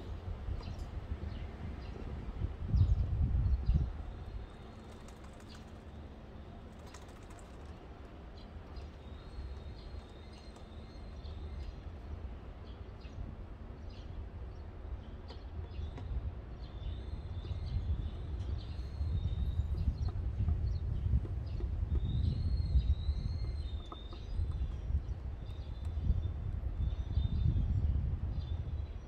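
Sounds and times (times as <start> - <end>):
small birds chirping: 3.4 - 27.8.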